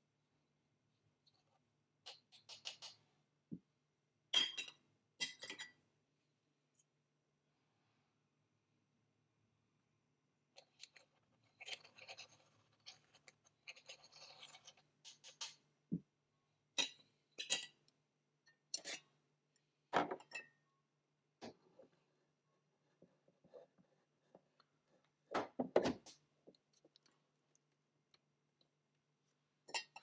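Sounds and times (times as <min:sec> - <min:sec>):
scraping of ground coffee: 0:10.6 - 0:15.6.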